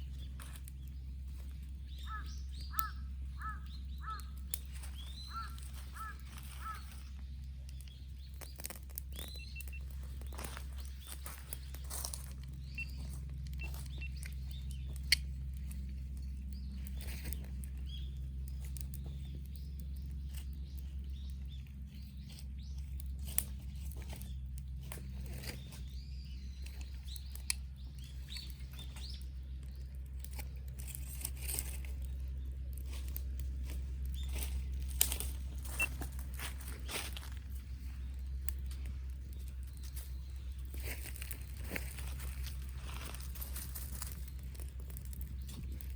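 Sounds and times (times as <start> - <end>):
campfire crackling and popping: 0.0 - 45.9
steady low hum: 0.0 - 45.9
faint bird chirps: 1.3 - 15.7, 35.6 - 38.2.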